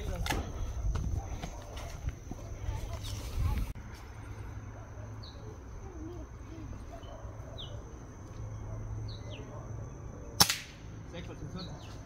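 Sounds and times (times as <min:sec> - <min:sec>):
small bird chirping: 0:05.1 - 0:10.1.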